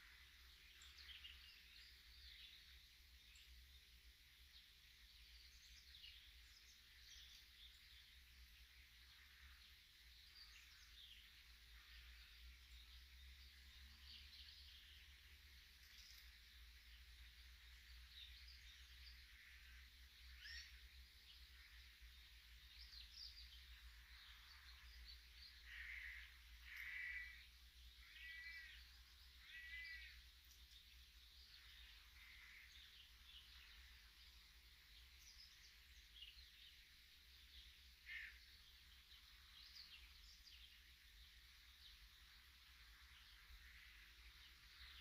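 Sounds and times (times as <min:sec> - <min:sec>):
small birds chirping: 0:00.0 - 0:45.0
harsh bird calls: 0:25.5 - 0:30.2.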